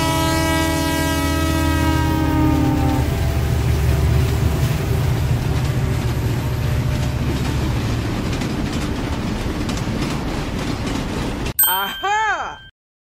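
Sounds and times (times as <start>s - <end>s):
train rumbling on rails: 0.0s - 11.6s
faint clacking of train wheels: 2.8s - 11.6s.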